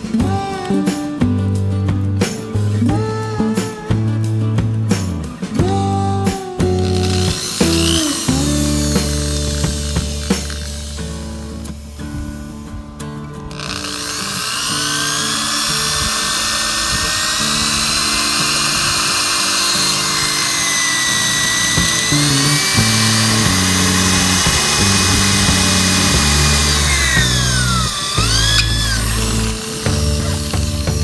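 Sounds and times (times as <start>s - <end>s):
background music: 0.0s - 31.0s
high-speed power tool whine: 6.8s - 12.8s, 13.5s - 31.0s.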